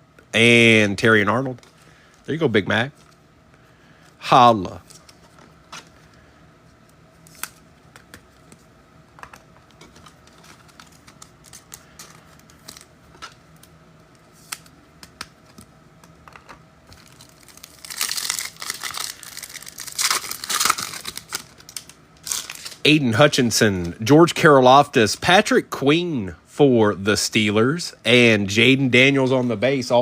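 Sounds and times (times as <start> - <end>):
card pack wrapper tearing and crinkling: 7.2 - 7.6, 9.8 - 13.6, 16.9 - 22.9.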